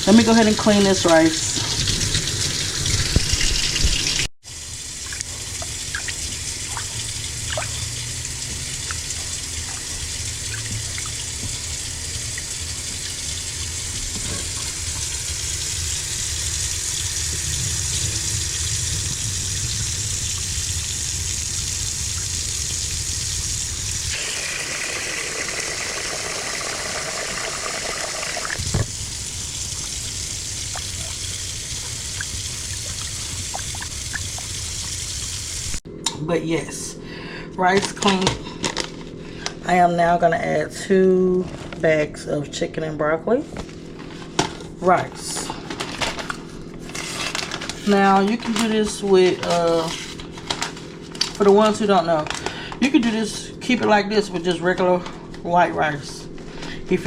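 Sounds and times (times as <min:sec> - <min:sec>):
kitchen tap running: 0:00.0 - 0:35.8.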